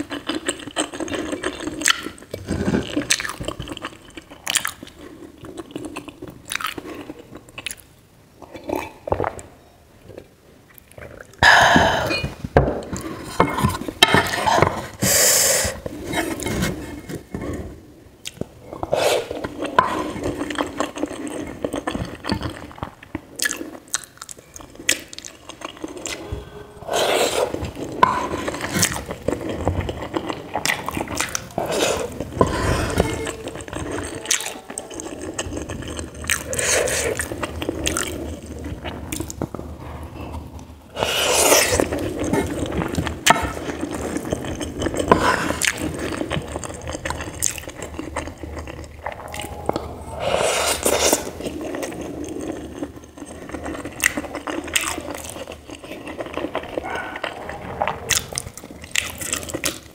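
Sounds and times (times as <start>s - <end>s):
wooden spatula scraping pan: 15.9s - 17.6s, 31.6s - 34.0s.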